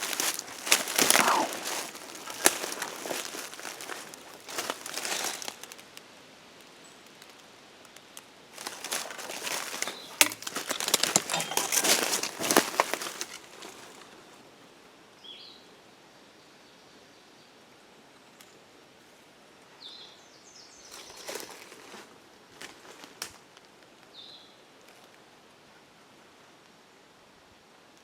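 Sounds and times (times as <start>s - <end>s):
footsteps through dry leaves: 0.0s - 5.9s, 8.5s - 14.3s.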